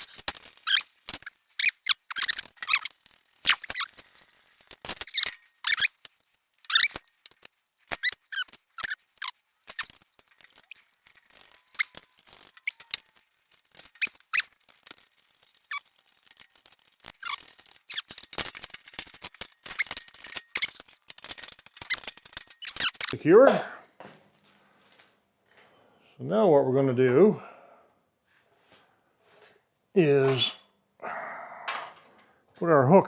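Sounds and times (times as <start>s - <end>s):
short high squeaks and clicks: 0.0s - 23.2s, 30.0s - 30.7s.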